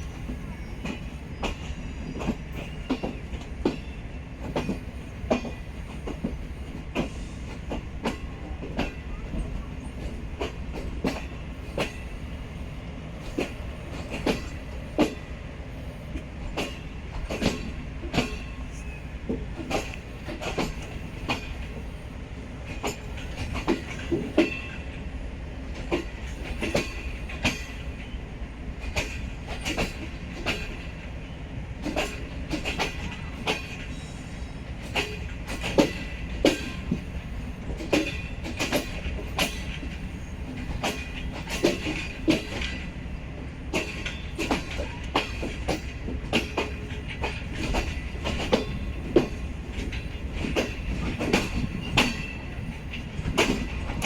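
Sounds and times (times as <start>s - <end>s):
low train rumble: 0.0s - 54.0s
train wheels clacking over rail joints: 0.1s - 54.0s.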